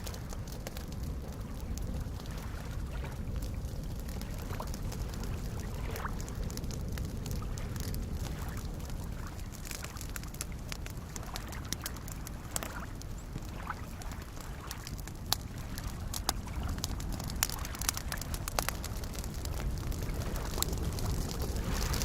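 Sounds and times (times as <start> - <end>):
campfire crackling and popping: 0.0 - 22.0
lake waves lapping: 0.0 - 22.0.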